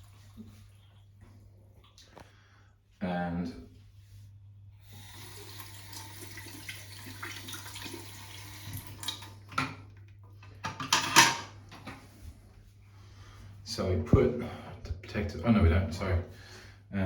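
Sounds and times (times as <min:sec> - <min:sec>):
shower water hissing: 0:04.0 - 0:09.1.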